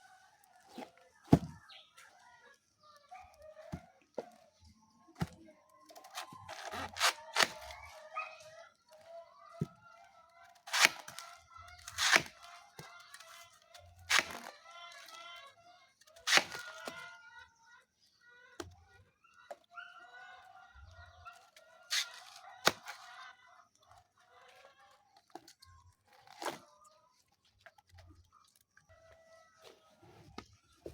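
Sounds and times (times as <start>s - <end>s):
blade chopping banana stems: 0.7s - 1.6s, 5.2s - 8.1s, 10.6s - 14.6s, 16.2s - 17.0s, 21.9s - 23.2s
chickens clucking: 16.3s - 25.4s.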